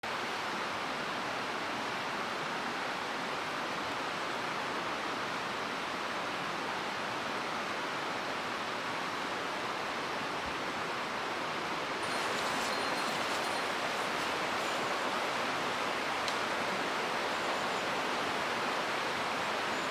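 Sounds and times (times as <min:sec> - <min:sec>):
mountain stream rushing: 0:00.0 - 0:19.9.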